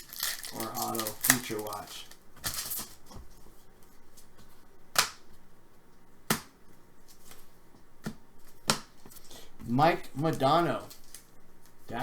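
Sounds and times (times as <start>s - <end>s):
trading cards clicking and snapping: 0.0s - 3.0s, 4.9s - 5.3s, 8.0s - 9.0s.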